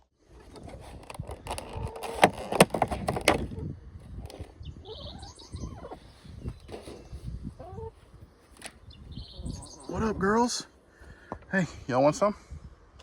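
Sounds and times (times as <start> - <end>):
short creak: 0.4 - 3.5
bird chirping: 4.5 - 10.7.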